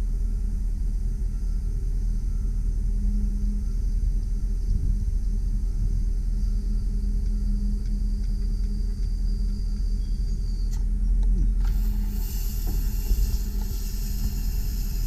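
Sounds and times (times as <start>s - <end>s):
hydraulics humming: 0.0s - 15.0s
truck engine rumbling: 0.0s - 15.0s.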